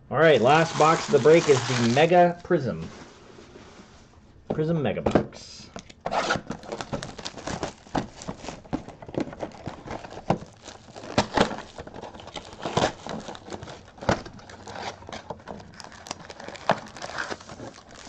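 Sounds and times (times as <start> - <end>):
cardboard box being opened: 0.4 - 2.2, 6.1 - 18.0
wrapping crinkling: 0.4 - 3.1, 6.2 - 18.0.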